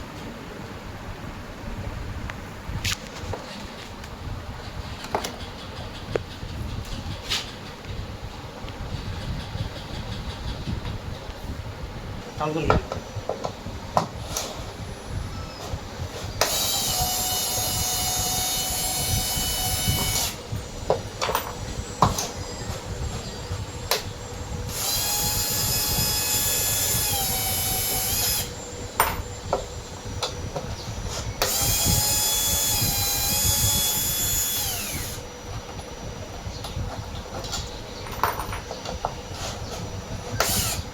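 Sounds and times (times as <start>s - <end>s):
power drill whining: 16.4s - 24.1s, 24.7s - 35.9s, 40.4s - 40.9s.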